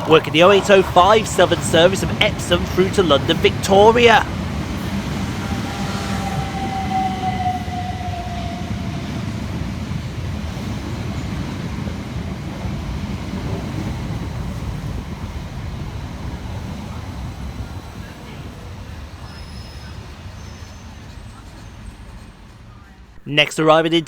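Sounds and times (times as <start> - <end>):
train motor whine: 0.0 - 11.4
wheels rumbling on rail: 0.0 - 23.2.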